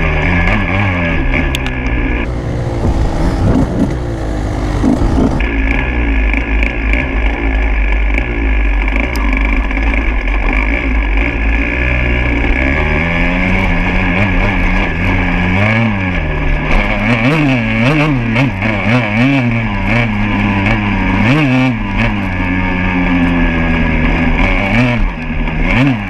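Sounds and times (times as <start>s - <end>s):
motorcycle engine revving: 0.0s - 26.0s
wind noise on microphone: 2.6s - 5.5s.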